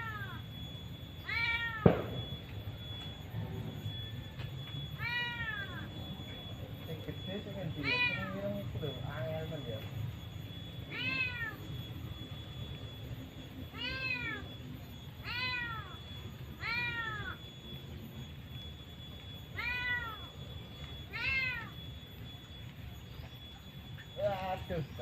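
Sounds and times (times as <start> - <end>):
cat meowing: 1.2 - 1.8, 5.0 - 5.9, 7.8 - 8.4, 10.9 - 11.6, 13.7 - 14.4, 15.2 - 16.0, 16.6 - 17.4, 19.6 - 20.3, 21.1 - 21.7.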